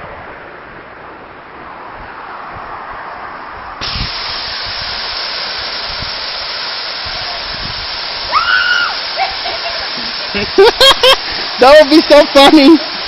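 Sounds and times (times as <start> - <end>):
waterfall rushing hiss: 3.2 - 13.0.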